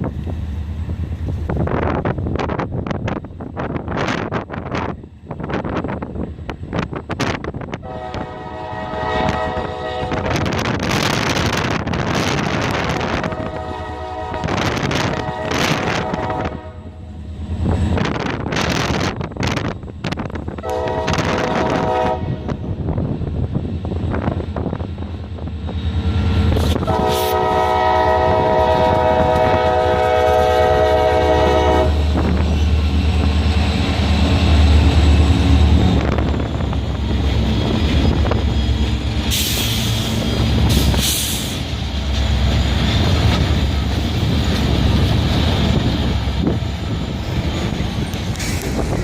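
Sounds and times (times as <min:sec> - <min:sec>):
train rumbling past: 0:00.0 - 0:49.0
train horn: 0:07.8 - 0:10.7, 0:12.8 - 0:17.1, 0:20.6 - 0:22.7, 0:26.7 - 0:32.4
train wheel clatter: 0:23.0 - 0:49.0.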